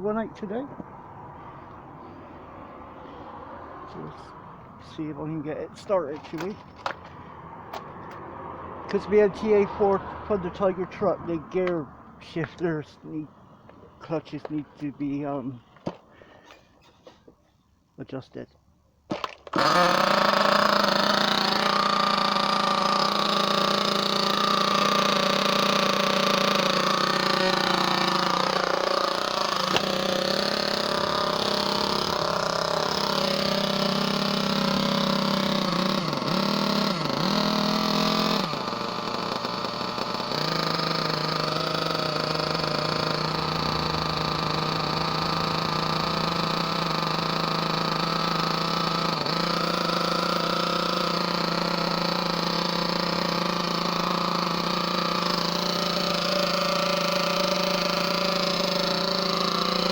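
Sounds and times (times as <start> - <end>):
model car engine buzzing: 19.1 - 59.9.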